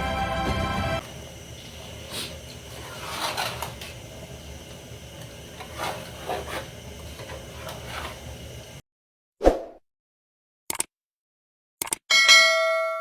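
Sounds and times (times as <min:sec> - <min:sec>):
objects scraping and rubbing: 0:02.1 - 0:04.0, 0:05.6 - 0:08.3.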